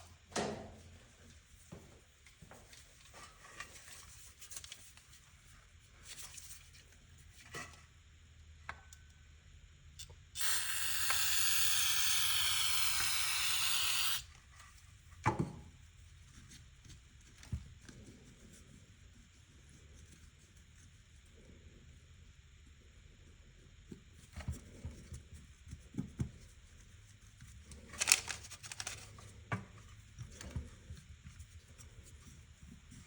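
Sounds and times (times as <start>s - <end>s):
pressurised spray hissing: 10.4s - 14.2s.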